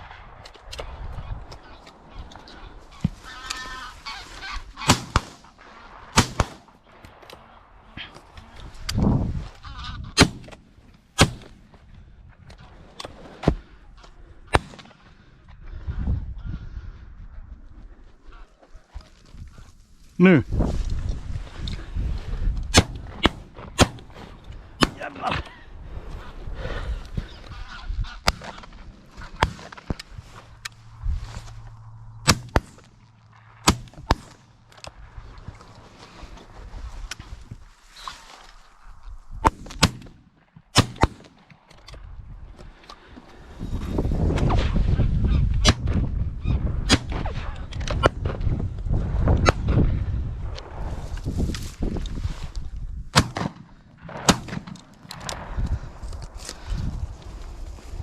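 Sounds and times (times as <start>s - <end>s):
goose calling: 1.6s - 5.1s
shotgun shots: 6.1s - 6.7s, 22.7s - 24.2s, 33.6s - 34.4s, 39.4s - 41.3s, 53.1s - 55.6s.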